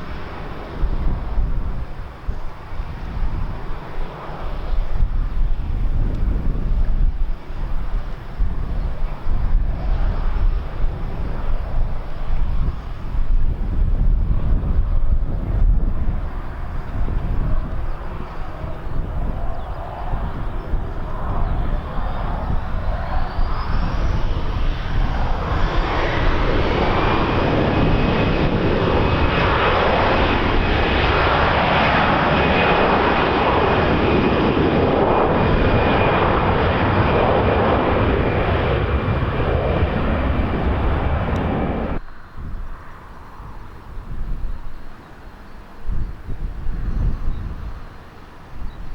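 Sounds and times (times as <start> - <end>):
wind noise: 0.0 - 48.9
turbine engines whining: 16.2 - 45.8.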